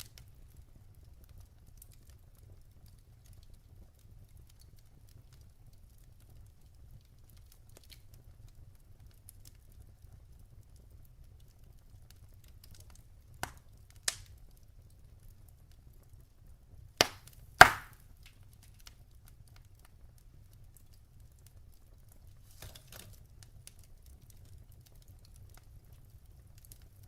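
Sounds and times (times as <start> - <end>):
fire low rumble: 0.0 - 27.0
sharp pops of fire: 12.5 - 14.6, 16.8 - 19.0
logs crackling: 12.6 - 14.4, 17.0 - 18.9, 22.1 - 27.0.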